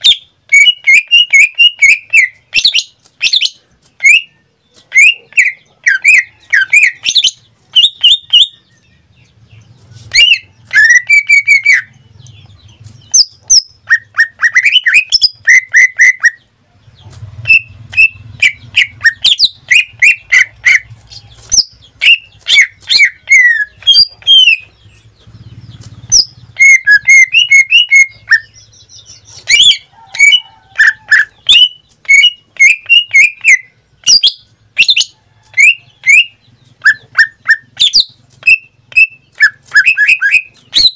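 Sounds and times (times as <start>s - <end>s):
bird singing chirps and whistles: 0.0s - 4.4s, 5.0s - 8.9s, 10.1s - 12.4s, 13.0s - 16.5s, 17.5s - 20.9s, 21.5s - 40.9s.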